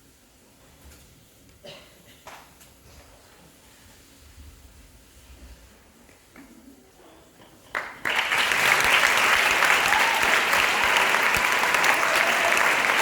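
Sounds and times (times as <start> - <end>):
audience applause: 7.7 - 13.0.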